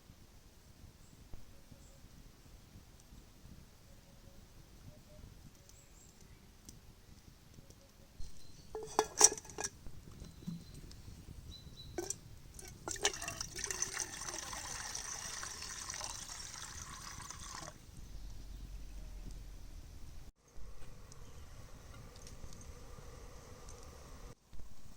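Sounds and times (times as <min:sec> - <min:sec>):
liquid being poured: 0:12.0 - 0:17.8.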